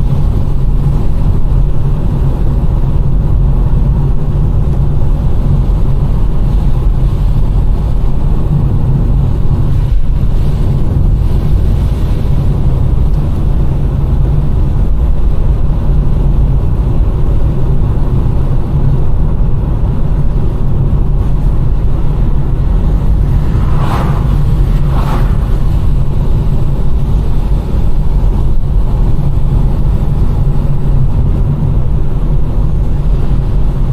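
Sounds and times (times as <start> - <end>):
car driving on wet road: 0.0 - 33.9
higher swish: 22.9 - 26.8.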